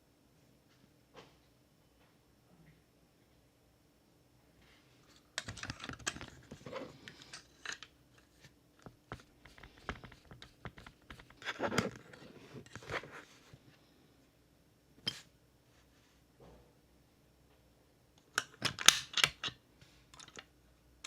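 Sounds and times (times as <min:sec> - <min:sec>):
clicks and taps of small parts: 0:18.3 - 0:19.5.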